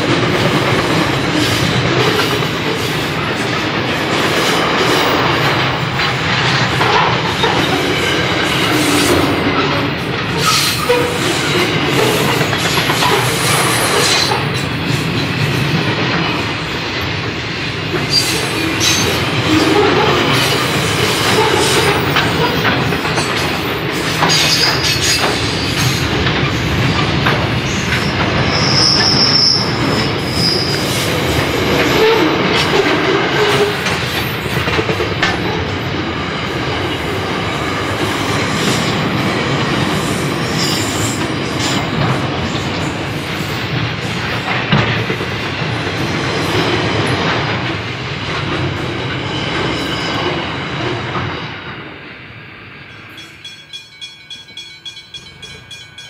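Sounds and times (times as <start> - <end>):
train wheels clicking over rail joints: 0.0 - 51.9
high wheel squeal: 27.7 - 31.1.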